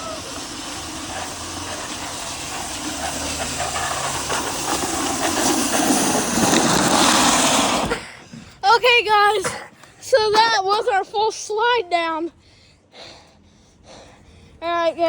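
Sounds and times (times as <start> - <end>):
cart wheels rolling downhill: 0.0 - 8.1.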